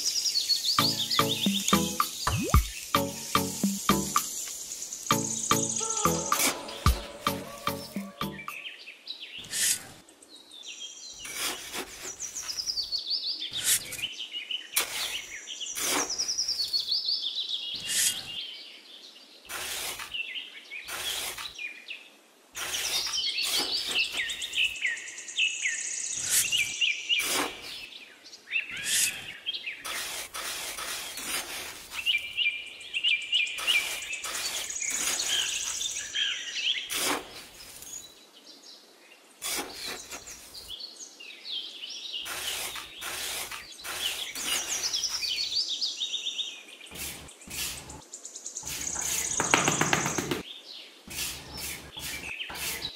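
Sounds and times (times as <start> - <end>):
birds chirping: 0.0 - 11.4, 32.0 - 38.1, 39.6 - 52.9
metal trowel scraping damp sand: 5.2 - 8.6, 9.4 - 10.0, 11.2 - 12.6, 14.8 - 16.3, 17.8 - 18.3, 19.5 - 20.2, 20.9 - 21.6, 22.6 - 24.5, 26.2 - 27.8, 28.8 - 32.2, 33.6 - 35.9, 36.9 - 38.1, 39.4 - 40.7, 42.2 - 45.4, 46.9 - 48.0, 48.6 - 49.4, 51.1 - 52.9.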